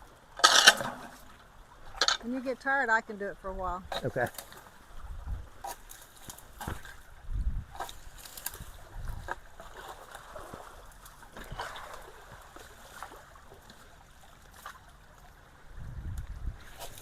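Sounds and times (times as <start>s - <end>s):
water trickling and gurgling: 0.0s - 17.0s
small splashes or knocks: 3.9s - 7.1s.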